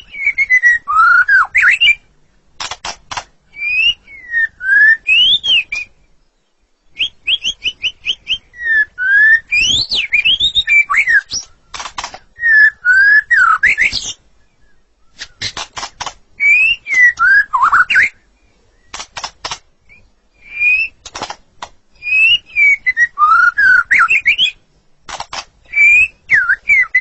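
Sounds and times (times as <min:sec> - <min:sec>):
bird singing whistled phrases: 0:00.0 - 0:02.1, 0:03.5 - 0:06.1, 0:06.9 - 0:11.7, 0:12.4 - 0:15.5, 0:16.4 - 0:18.9, 0:19.9 - 0:21.1, 0:22.0 - 0:24.6, 0:25.6 - 0:27.0
harsh bird rattles: 0:02.6 - 0:03.4, 0:11.1 - 0:12.4, 0:15.2 - 0:17.1, 0:18.9 - 0:19.7, 0:21.0 - 0:21.8, 0:25.0 - 0:25.8.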